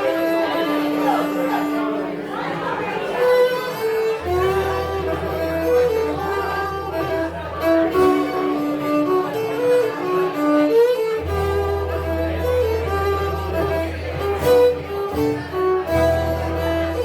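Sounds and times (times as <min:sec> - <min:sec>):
folk band melody: 0:00.0 - 0:17.0.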